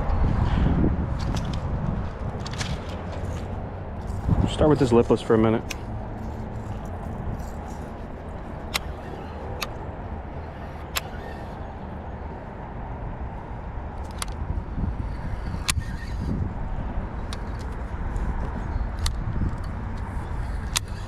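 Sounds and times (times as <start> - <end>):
wind buffeting microphone: 0.0 - 21.0
sharp clicks: 5.6 - 11.6.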